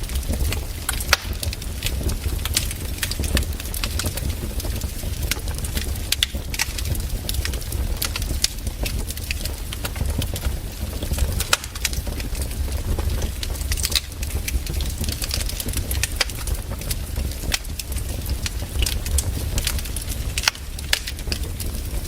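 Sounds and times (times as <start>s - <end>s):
fire crackling: 0.0s - 22.0s.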